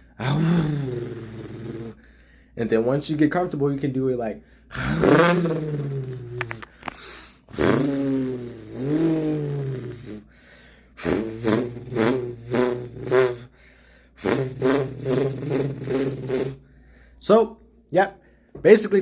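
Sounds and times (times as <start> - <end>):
person imitating car engine: 0.0 - 2.0, 4.7 - 6.7, 7.5 - 10.3, 11.0 - 13.5, 14.2 - 16.6.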